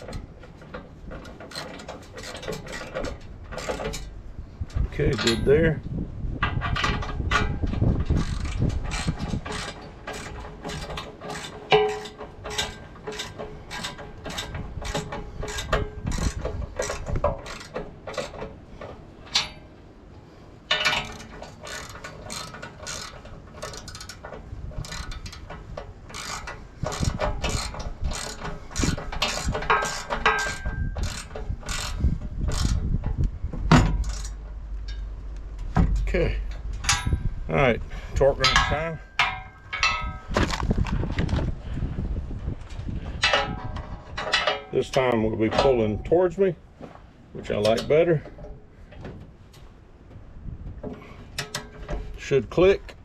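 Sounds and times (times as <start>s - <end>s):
ratchet wrench clicking: 20.9s - 24.2s, 24.8s - 25.5s, 26.1s - 32.8s.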